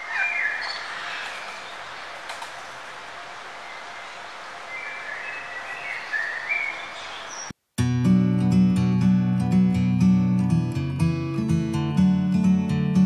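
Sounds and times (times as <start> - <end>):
birds chirping: 0.0 - 7.6
outdoor ambient hiss: 0.0 - 13.0.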